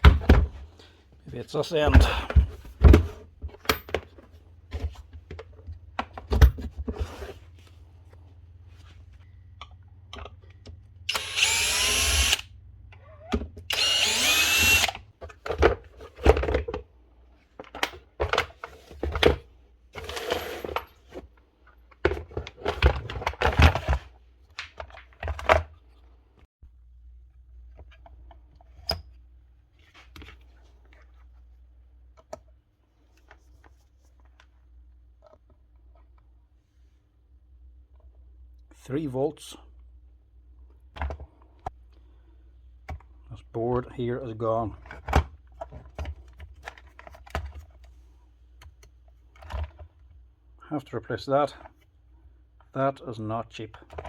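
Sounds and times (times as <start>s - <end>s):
cordless drill spinning up: 11.1s - 12.5s, 13.7s - 15.0s
clicks and knocks of parts handled: 14.4s - 19.4s, 44.8s - 47.9s.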